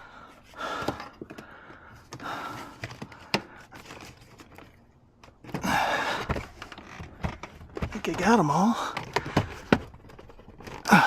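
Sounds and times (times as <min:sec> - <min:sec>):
soft breaths: 0:00.0 - 0:04.5.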